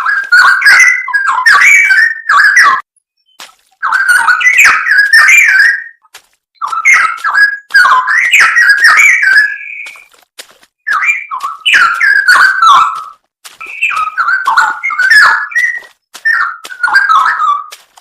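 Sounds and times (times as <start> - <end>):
bird singing fluty whistled notes: 0.0 - 10.1, 10.9 - 17.8.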